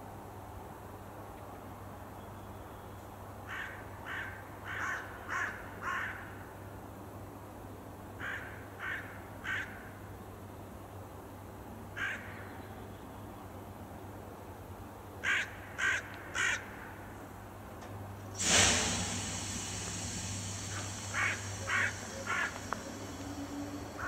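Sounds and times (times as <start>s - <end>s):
bird calling: 21.1s - 23.9s.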